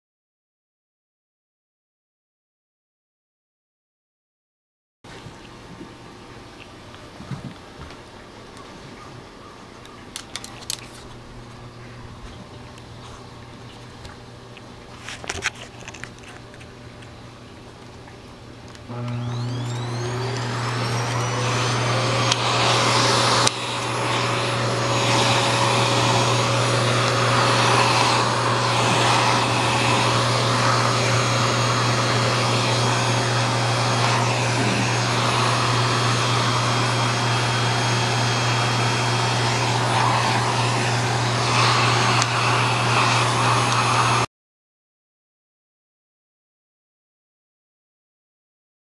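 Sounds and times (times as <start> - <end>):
vacuum cleaner motor whine: 18.9 - 44.3.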